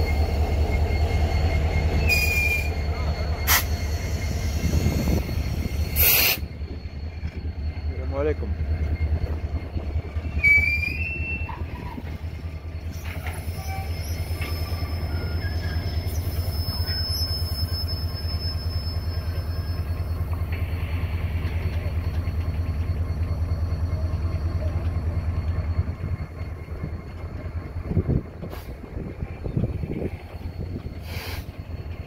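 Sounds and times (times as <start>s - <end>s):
long thin high squeal: 0.0s - 27.5s
wheel squeal: 0.0s - 32.0s.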